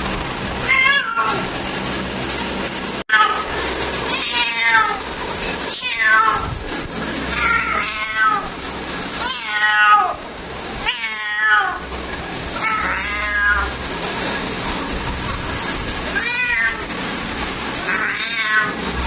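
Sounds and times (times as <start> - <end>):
cat meowing: 0.7 - 1.4, 4.1 - 5.0, 5.7 - 6.5, 7.3 - 8.5, 9.2 - 10.2, 10.8 - 11.8, 12.5 - 13.8, 16.1 - 16.9, 17.8 - 18.8.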